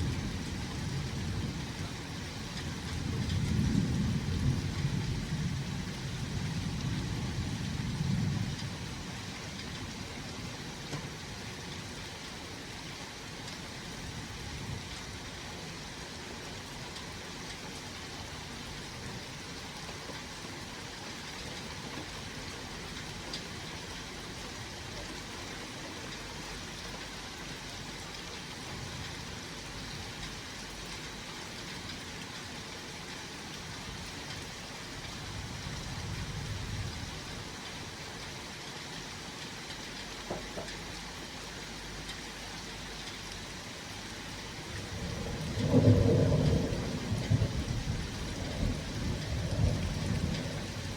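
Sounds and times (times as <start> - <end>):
thunder rumble: 0.0 - 10.0, 44.6 - 50.9
steady rain: 0.0 - 50.9.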